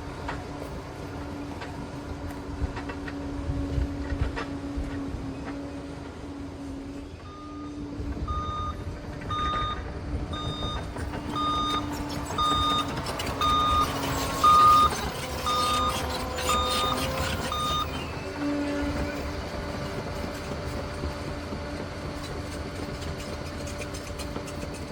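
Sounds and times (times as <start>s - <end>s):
diesel engine rumble: 0.0s - 24.9s
reversing alarm beeping: 7.2s - 18.3s.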